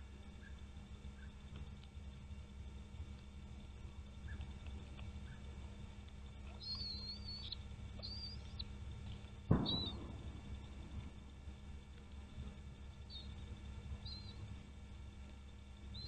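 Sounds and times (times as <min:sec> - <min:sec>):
steady low hum: 0:00.0 - 0:16.0
high thin bird calls: 0:09.5 - 0:10.8
single thump: 0:09.5 - 0:11.1.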